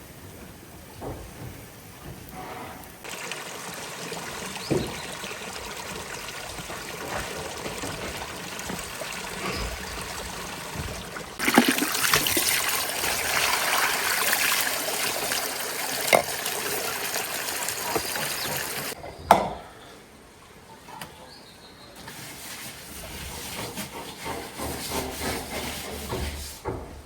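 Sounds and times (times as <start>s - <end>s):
water trickling: 3.1s - 19.0s.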